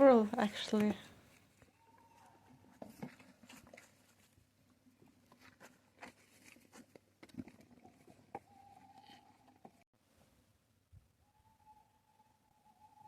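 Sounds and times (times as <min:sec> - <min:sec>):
owl hooting: 0:11.2 - 0:13.0.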